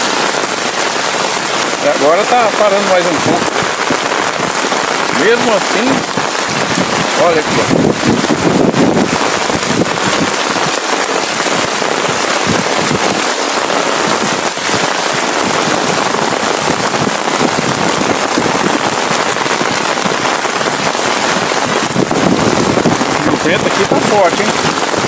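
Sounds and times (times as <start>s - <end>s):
heavy rain on flooded street: 0.0s - 25.0s.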